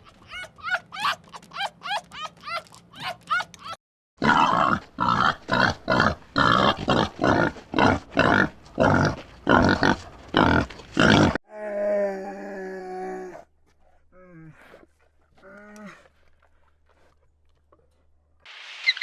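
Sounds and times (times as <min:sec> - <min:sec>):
animal grunting harshly: 0:04.2 - 0:11.4
high yelping calls: 0:18.7 - 0:19.0.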